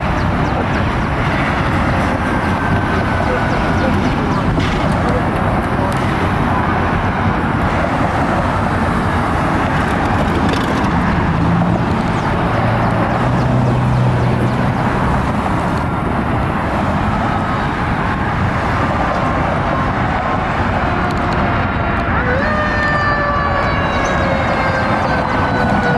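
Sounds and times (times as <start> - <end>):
heavy vehicle engine drone: 0.0 - 25.9
street traffic noise: 0.0 - 25.9.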